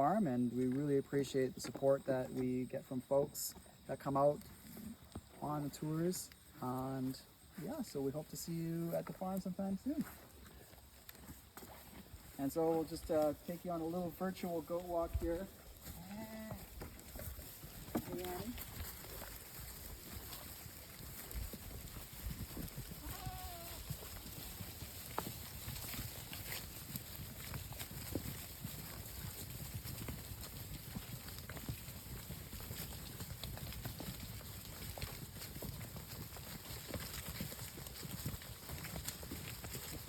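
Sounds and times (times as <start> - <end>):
goat hoof steps: 0.5 - 2.4, 8.7 - 40.0
footsteps on trail: 6.4 - 40.0
goat bleat: 23.0 - 23.9.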